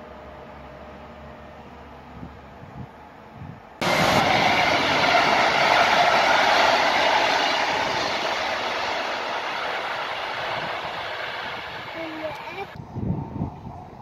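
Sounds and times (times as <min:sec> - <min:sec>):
train wheels rushing on rails: 0:03.8 - 0:12.8.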